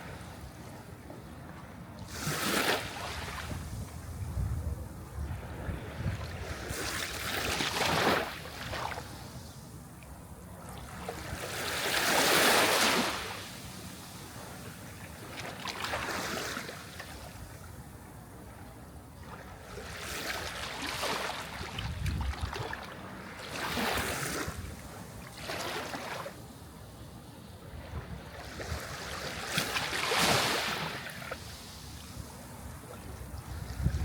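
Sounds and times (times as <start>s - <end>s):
sea waves breaking: 5.4s - 9.4s, 10.9s - 17.3s, 19.2s - 26.4s, 28.4s - 34.0s.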